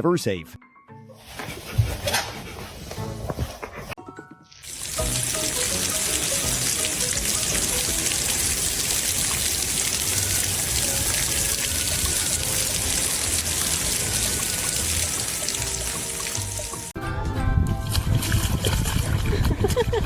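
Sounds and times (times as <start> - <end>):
running water rushing: 4.6 - 16.9.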